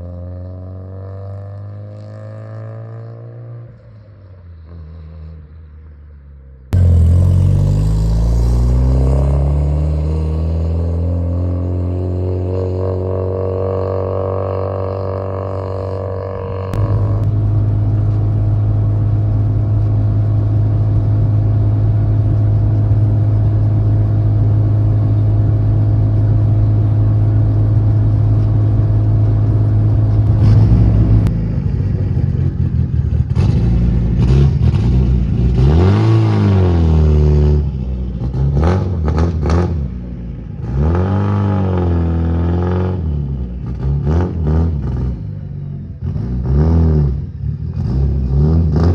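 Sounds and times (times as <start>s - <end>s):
car engine droning and revving: 0.0s - 48.9s.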